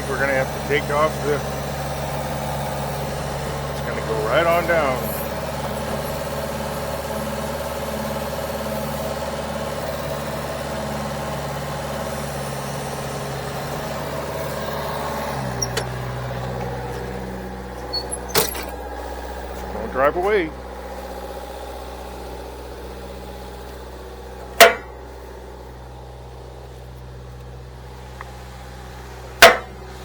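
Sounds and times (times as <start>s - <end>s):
machine engine running: 0.0s - 30.0s
short knocks or clanks: 24.6s - 25.0s, 29.4s - 29.8s.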